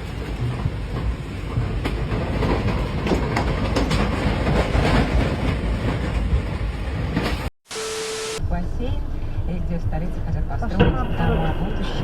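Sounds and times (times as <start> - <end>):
steady beep tone with hiss: 7.7 - 8.4.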